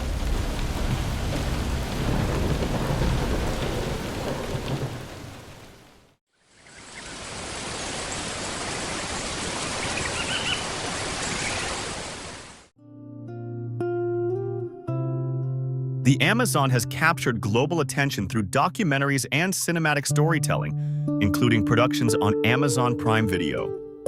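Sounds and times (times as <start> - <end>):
low rumbling thunder: 0.0 - 5.8
heavy rain: 0.0 - 6.2, 7.0 - 12.7.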